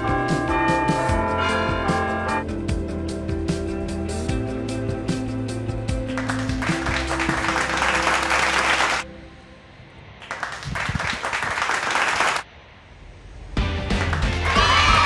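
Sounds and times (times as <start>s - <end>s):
background music: 0.0s - 10.2s, 13.6s - 15.0s
crowd clapping: 6.1s - 9.0s, 10.2s - 12.5s, 13.8s - 15.0s.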